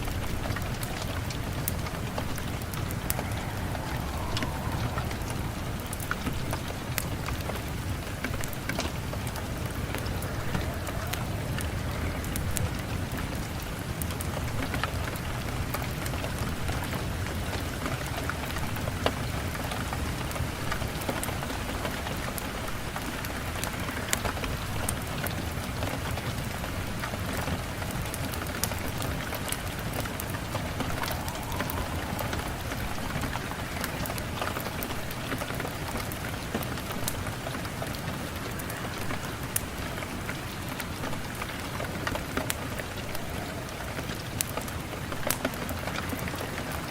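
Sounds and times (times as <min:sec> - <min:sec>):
deep low rumble: 0:00.0 - 0:13.4, 0:29.7 - 0:35.2
steady rain: 0:00.0 - 0:46.9
sharp crackles: 0:28.1 - 0:46.9.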